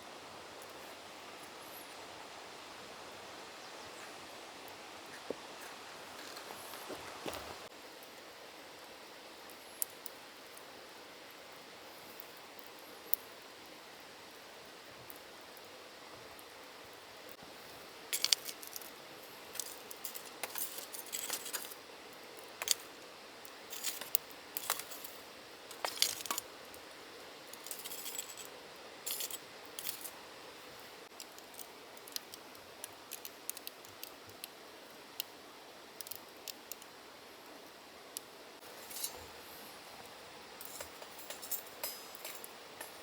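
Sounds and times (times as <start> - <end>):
steady fire hiss: 0.0 - 43.0
campfire crackling and popping: 14.3 - 43.0.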